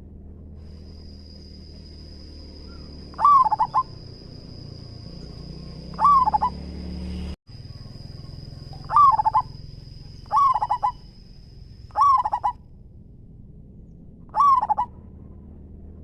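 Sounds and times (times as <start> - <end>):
dove cooing: 2.7 - 6.6, 7.9 - 11.3, 11.9 - 12.6, 14.3 - 15.0.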